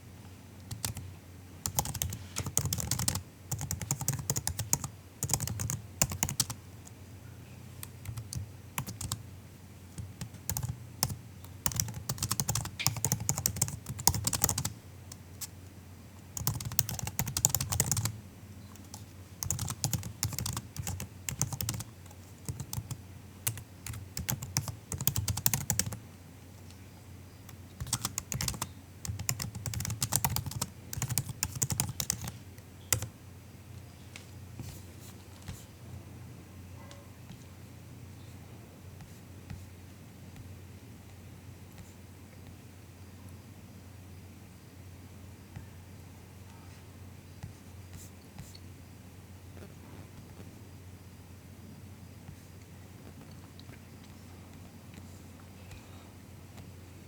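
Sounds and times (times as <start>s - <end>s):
laptop keyboard typing: 0.7s - 7.0s, 7.8s - 9.2s, 9.9s - 15.5s, 16.4s - 26.0s, 27.5s - 33.1s.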